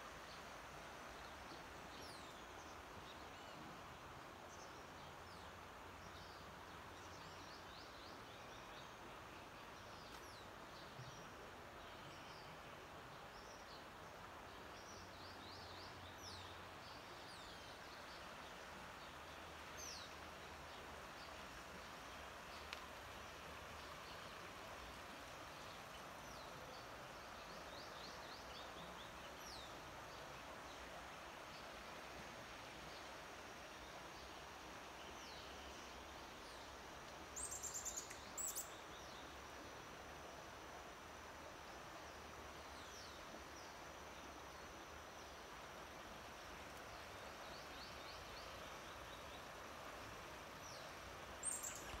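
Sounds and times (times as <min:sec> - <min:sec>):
faint birdsong: 0:00.0 - 0:52.0
steady background hiss: 0:00.0 - 0:52.0
faint bird chirps: 0:37.4 - 0:39.2, 0:50.6 - 0:52.0.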